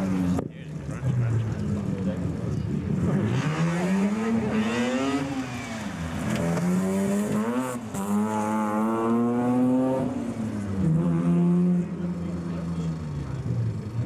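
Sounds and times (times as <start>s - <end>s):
rotary engine revving hard: 2.8s - 14.0s.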